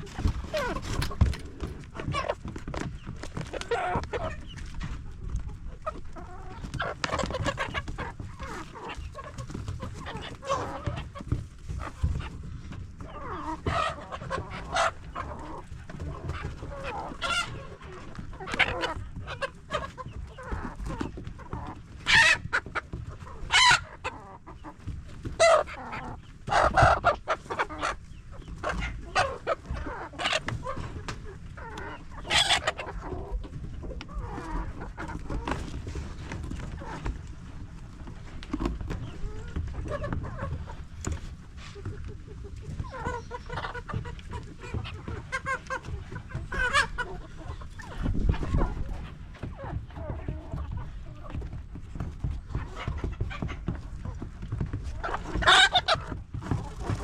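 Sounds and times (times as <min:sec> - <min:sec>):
chickens clucking and squawking: 0:00.0 - 0:57.0.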